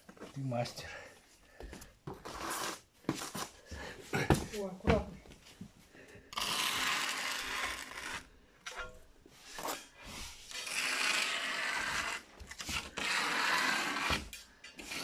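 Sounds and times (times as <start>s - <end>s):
tool scraping hard surface: 6.3s - 15.0s.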